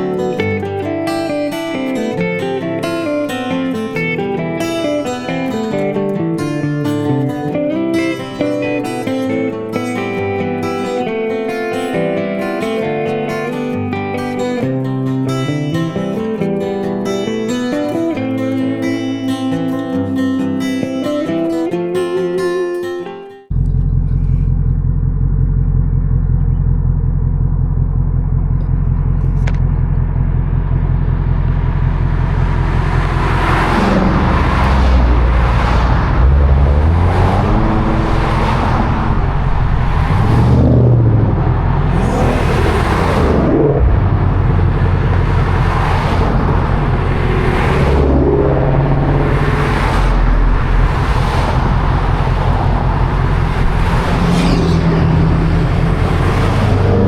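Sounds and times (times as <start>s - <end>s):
vehicle engine and road drone: 23.5s - 57.0s.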